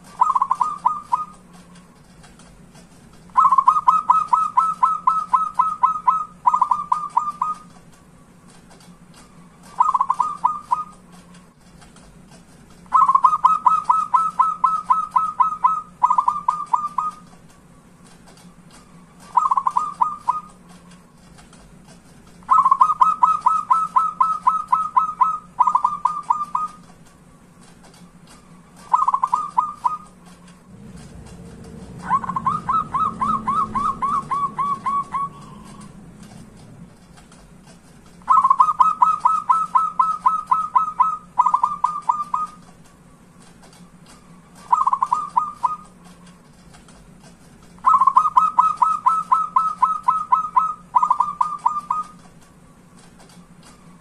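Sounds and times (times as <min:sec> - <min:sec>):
dove cooing: 0:00.0 - 0:01.4, 0:03.3 - 0:07.7, 0:09.6 - 0:11.0, 0:12.9 - 0:17.3, 0:19.2 - 0:20.6, 0:22.5 - 0:26.8, 0:28.8 - 0:36.6, 0:38.2 - 0:42.6, 0:44.6 - 0:46.0, 0:47.8 - 0:52.2
faint steady hum: 0:00.0 - 0:54.0.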